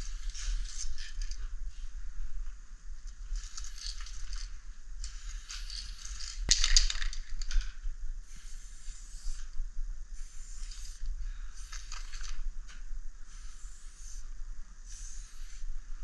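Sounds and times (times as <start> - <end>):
spray can hissing: 5.1 - 6.4, 8.2 - 9.5, 10.2 - 12.4, 13.3 - 15.7.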